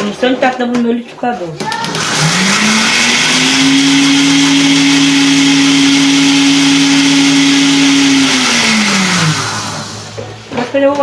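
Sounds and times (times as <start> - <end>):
electric mixer motor whine: 1.7 - 10.5.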